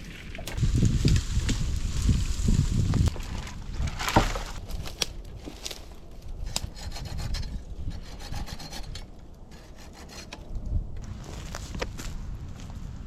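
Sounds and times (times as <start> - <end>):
hand tool rasping wood: 6.4 - 10.4.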